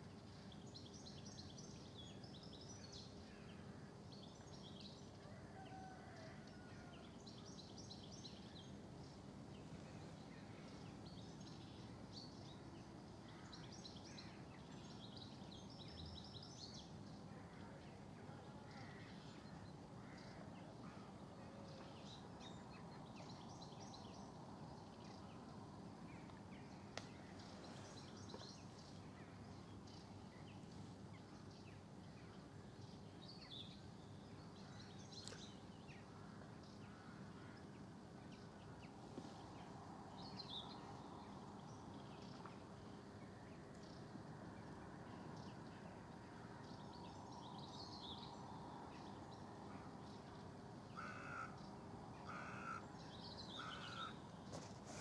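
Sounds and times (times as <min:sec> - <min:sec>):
birds chirping and trilling: 0:51.0 - 0:54.2.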